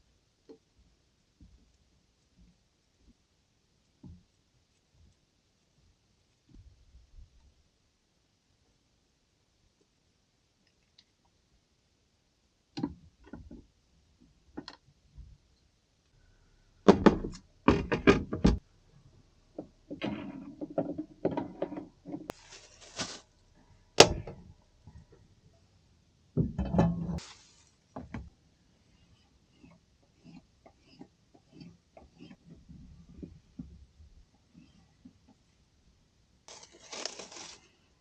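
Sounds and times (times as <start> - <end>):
knocks and thuds: 16.9 - 18.6.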